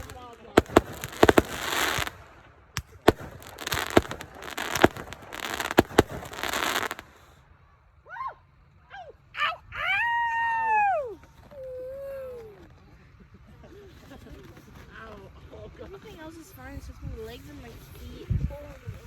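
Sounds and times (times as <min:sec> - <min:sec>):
fireworks bangs and crackling: 0:00.0 - 0:07.3.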